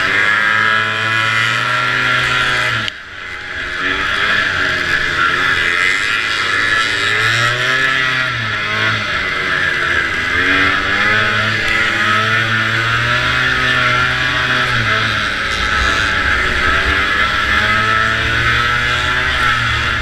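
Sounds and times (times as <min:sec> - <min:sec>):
snowmobile engine running at speed: 0:00.0 - 0:20.0.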